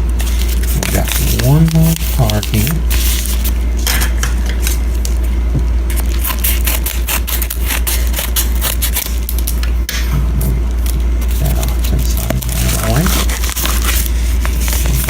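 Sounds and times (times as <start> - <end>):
packaging crinkling: 0.0 - 3.6, 5.9 - 9.6, 10.8 - 15.0
steady low hum: 0.0 - 15.0.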